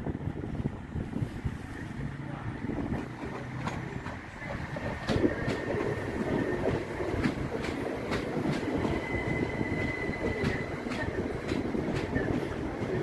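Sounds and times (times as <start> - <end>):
electric train rumbling: 0.0 - 13.0
high wheel squeal: 8.8 - 11.4.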